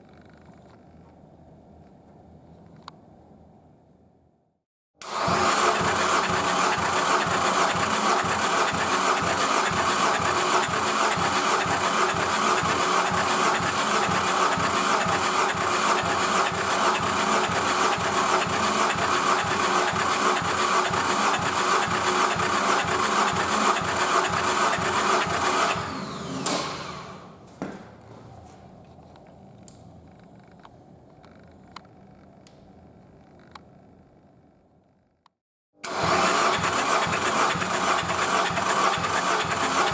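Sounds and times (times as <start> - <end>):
car engine running and spinning down: 5.0 - 27.1, 35.8 - 39.9.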